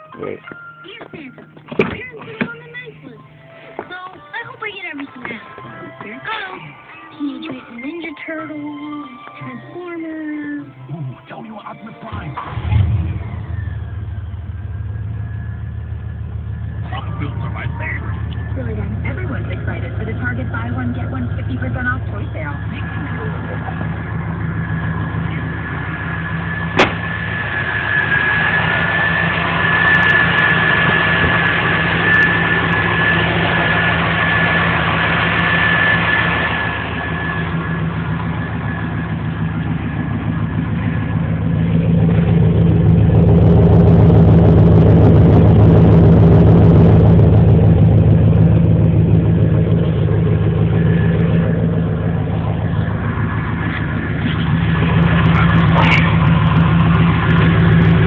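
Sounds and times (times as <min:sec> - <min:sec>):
truck engine idling and revving: 0:00.0 - 0:11.0, 0:12.0 - 0:58.0
high-pitched whine: 0:12.4 - 0:58.0.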